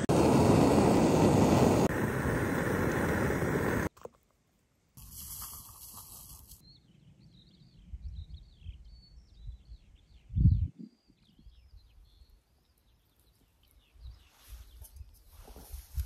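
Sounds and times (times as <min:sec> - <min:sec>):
wind rumble on microphone: 0:00.0 - 0:03.9, 0:07.1 - 0:12.2.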